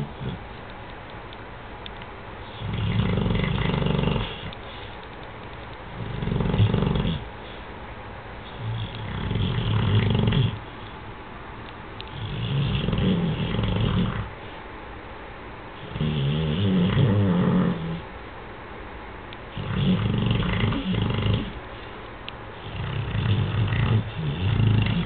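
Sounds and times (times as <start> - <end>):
dog snoring: 0.0 - 0.4, 2.4 - 4.8, 6.0 - 7.3, 8.4 - 10.6, 12.1 - 14.3, 15.8 - 18.0, 19.5 - 21.6, 22.6 - 25.0.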